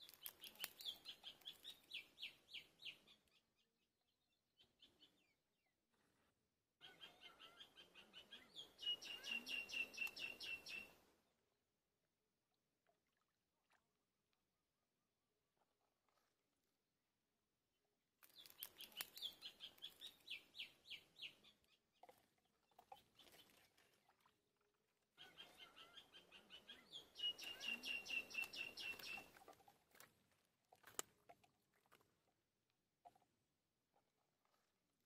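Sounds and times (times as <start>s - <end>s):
bird chirping rapidly: 25.3s - 29.2s.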